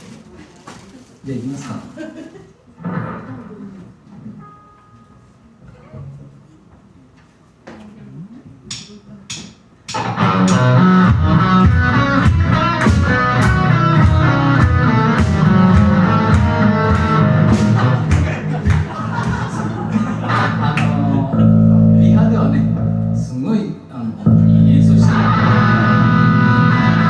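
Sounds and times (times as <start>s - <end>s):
live rock band playing: 9.9s - 23.2s, 24.3s - 27.0s.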